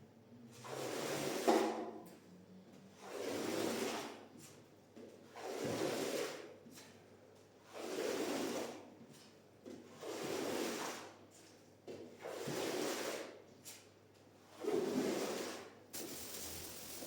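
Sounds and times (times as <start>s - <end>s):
squeegee swishing across wet rug: 7.6s - 9.3s, 9.9s - 11.6s, 14.5s - 17.0s.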